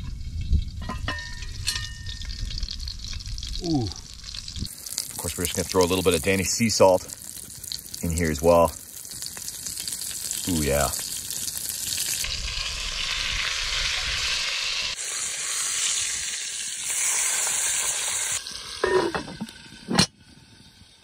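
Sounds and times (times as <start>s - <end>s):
fish sizzling in butter: 1.4s - 21.0s.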